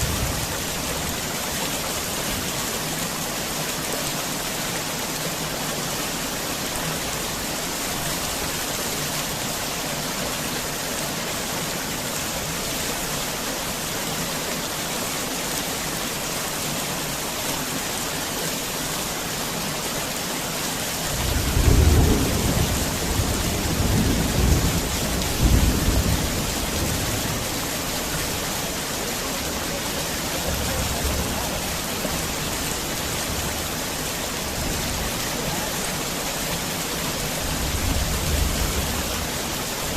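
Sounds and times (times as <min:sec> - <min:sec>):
heavy rain falling: 0:00.0 - 0:39.9
thunder rumbling: 0:21.2 - 0:27.6.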